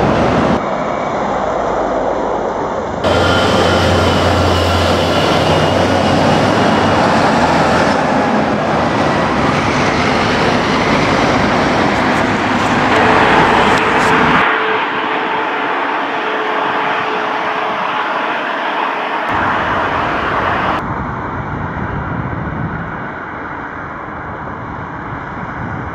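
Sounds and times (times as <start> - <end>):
heavy trucks driving past: 0.0 - 20.8
low hum: 2.8 - 21.5.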